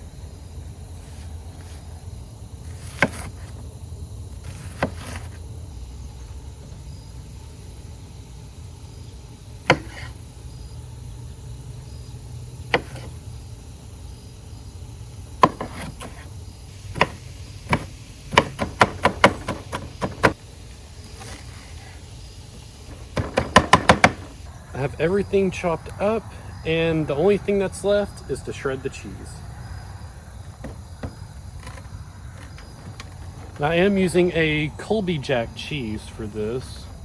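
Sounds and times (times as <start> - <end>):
knife chopping on cutting board: 12.7 - 13.1.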